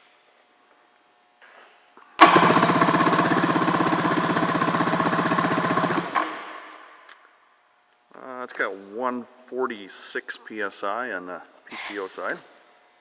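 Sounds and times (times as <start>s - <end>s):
engine starter cranking: 2.2s - 6.9s.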